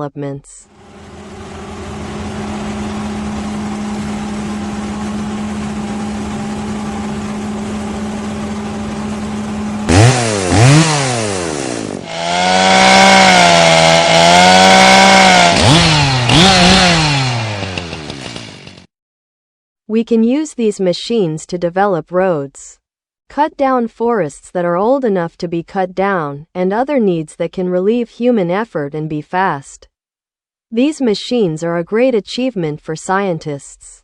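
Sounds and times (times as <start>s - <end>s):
chainsaw engine revving: 0.8s - 18.9s.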